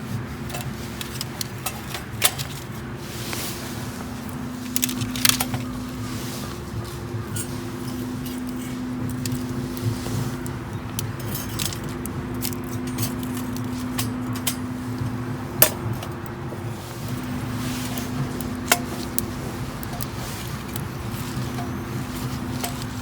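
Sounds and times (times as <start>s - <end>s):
steady low hum: 0.0s - 23.0s
wood fire crackling: 0.0s - 23.0s
metal cookware clinks: 11.0s - 14.7s.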